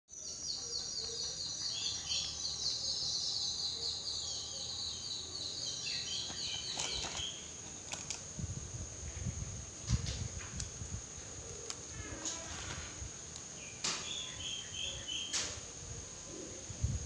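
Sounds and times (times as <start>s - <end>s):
small bird chirping: 0.1s - 7.6s.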